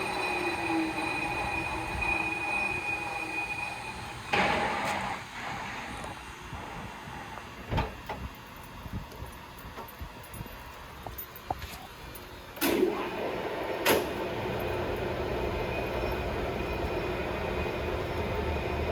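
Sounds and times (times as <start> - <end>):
lathe gear train whining: 0.0 - 6.7, 12.6 - 18.9.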